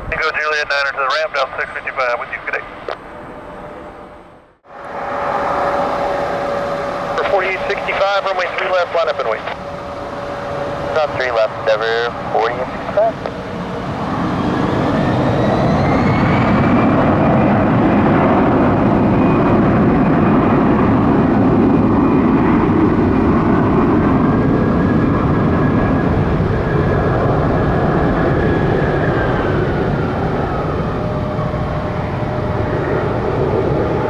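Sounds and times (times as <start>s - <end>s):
jet engines roaring with whine: 0.0s - 34.0s.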